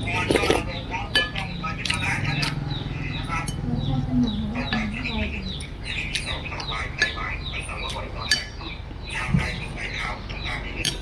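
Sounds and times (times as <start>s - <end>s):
small birds chirping: 0.0s - 11.0s
tableware clinking: 0.3s - 1.6s, 8.3s - 8.7s.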